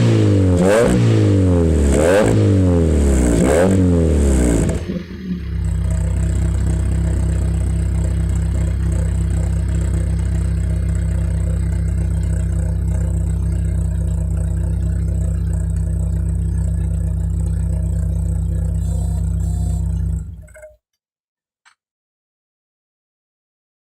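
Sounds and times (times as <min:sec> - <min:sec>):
car engine idling: 0:04.1 - 0:20.5.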